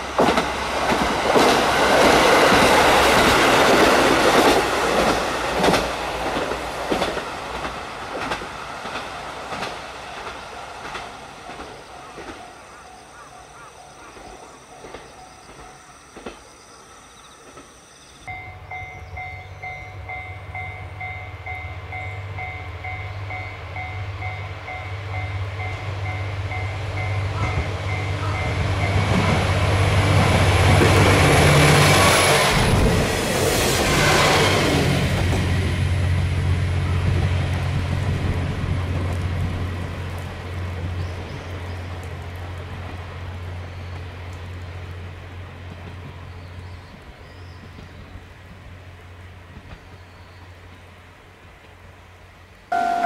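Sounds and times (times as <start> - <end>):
train rumbling past: 0.0 - 53.0
repeating beep: 52.7 - 53.0.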